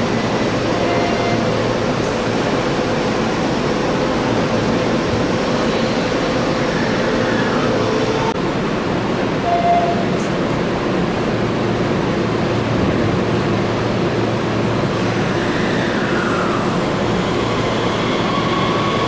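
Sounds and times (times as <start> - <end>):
train equipment humming: 0.0 - 19.0.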